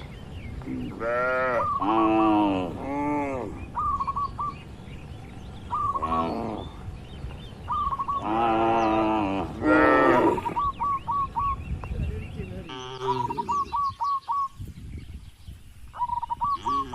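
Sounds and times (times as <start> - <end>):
bird chirping: 0.0 - 16.9
cattle mooing: 0.8 - 3.6, 8.2 - 10.6, 16.6 - 16.9.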